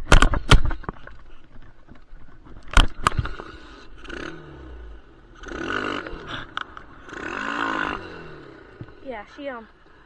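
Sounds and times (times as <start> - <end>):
dirt bike clunks: 0.0 - 3.5
dirt bike engine revving roughly: 3.1 - 9.2.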